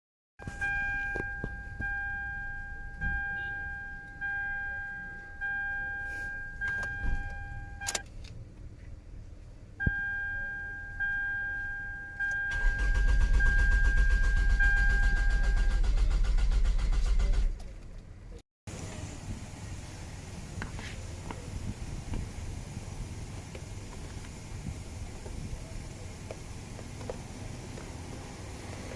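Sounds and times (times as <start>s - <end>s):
dashboard warning chime dinging: 0.4s - 8.0s, 9.8s - 15.8s
starter cranking engine: 12.5s - 17.7s.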